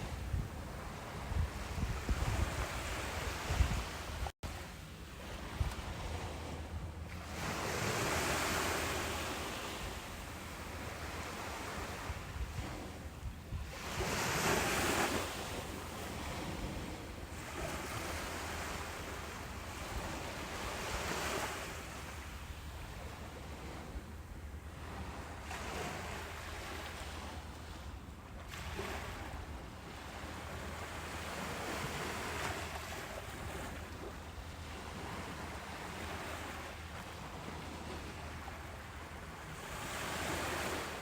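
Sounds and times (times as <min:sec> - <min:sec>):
wind buffeting microphone: 0:00.0 - 0:04.3, 0:05.2 - 0:21.4
ocean surf on beach: 0:00.0 - 0:41.0.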